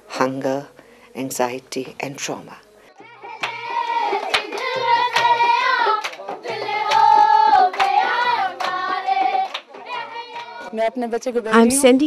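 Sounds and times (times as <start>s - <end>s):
children singing together: 3.0s - 10.7s
hand claps: 3.4s - 10.7s.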